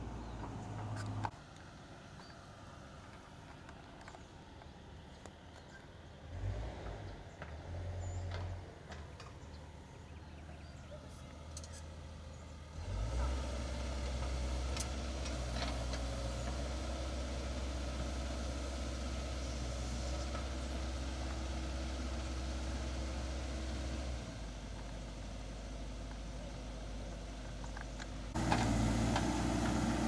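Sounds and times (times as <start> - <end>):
excavator diesel engine running: 12.9 - 30.0.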